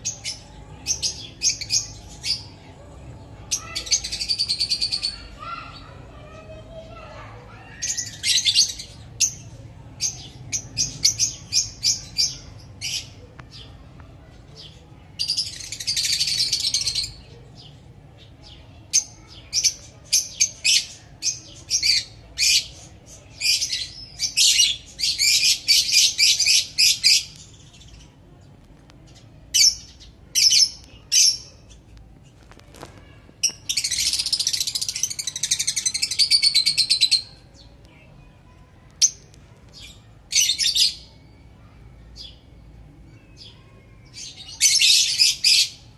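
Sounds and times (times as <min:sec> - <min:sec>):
lovebirds chirping shrilly: 0:07.6 - 0:09.4, 0:29.6 - 0:37.7.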